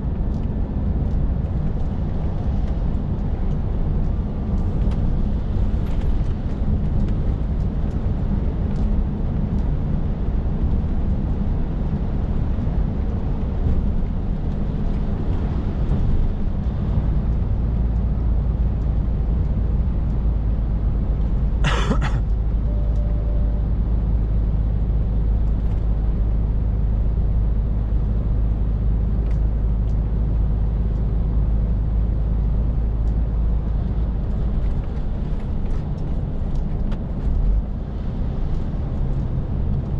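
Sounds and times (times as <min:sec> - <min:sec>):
truck diesel engine droning: 0:15.4 - 0:34.2.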